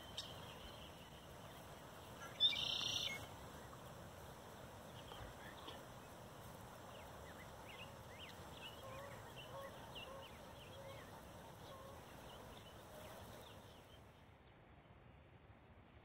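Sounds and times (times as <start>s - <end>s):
steady background hiss: 0.0s - 14.3s
high bird chirps: 2.3s - 3.2s.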